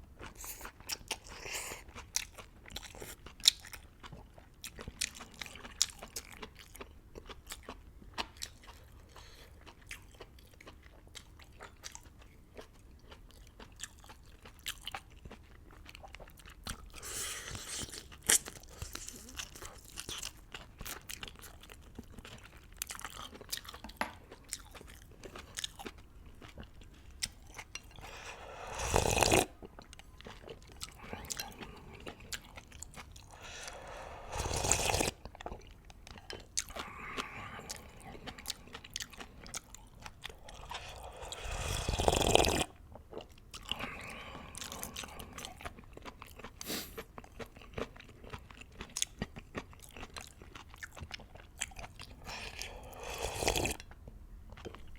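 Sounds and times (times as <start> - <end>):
wet chewing: 0.2 - 54.9
noodle slurps: 28.0 - 29.5, 33.4 - 35.2, 40.4 - 42.7, 52.3 - 53.8.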